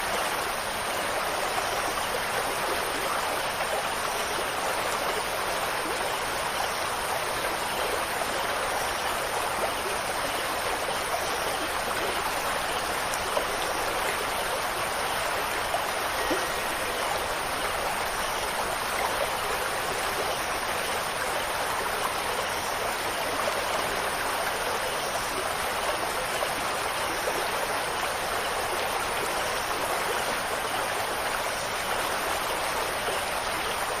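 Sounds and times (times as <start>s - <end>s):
rushing water: 0.0s - 34.0s.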